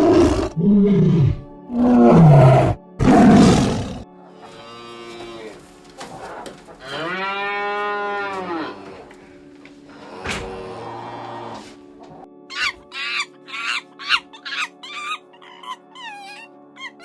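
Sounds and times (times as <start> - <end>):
animal roaring calls: 0.0 - 4.0
long rising and falling animal call: 12.5 - 17.0.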